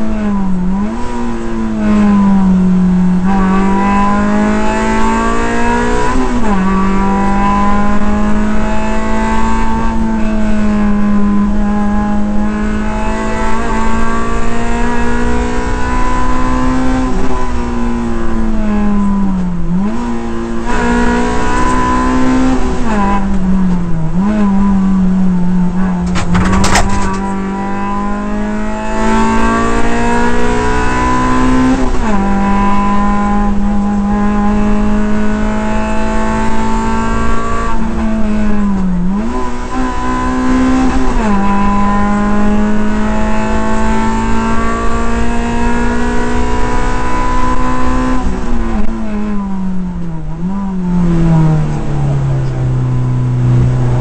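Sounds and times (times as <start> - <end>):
rally car engine revving: 0.0 - 54.0
sharp knock: 26.0 - 27.4.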